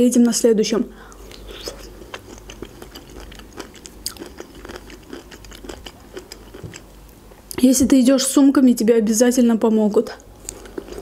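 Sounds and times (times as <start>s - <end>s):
person chewing pineapple: 1.1s - 7.2s, 10.2s - 11.0s.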